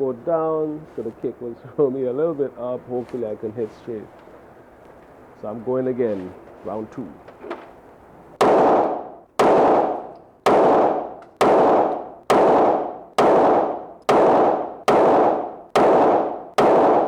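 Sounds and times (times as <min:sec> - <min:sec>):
handgun shots with echo: 0:08.4 - 0:17.0.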